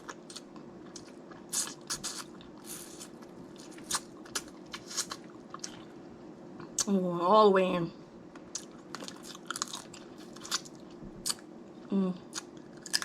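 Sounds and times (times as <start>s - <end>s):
wet chewing: 0.0s - 6.0s, 8.4s - 11.4s, 12.3s - 13.0s
crab shells cracking: 12.4s - 13.0s.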